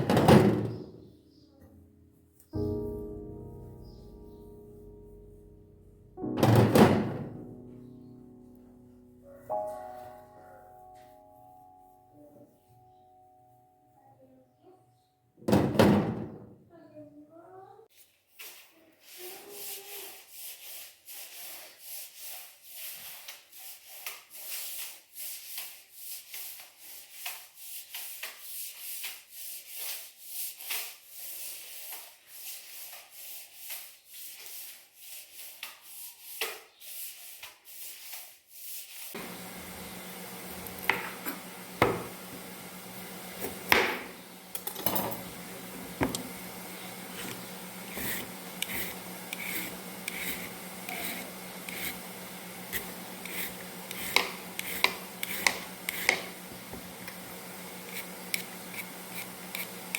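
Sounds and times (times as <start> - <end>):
rhythmic scrubbing strokes: 46.6 - 59.8.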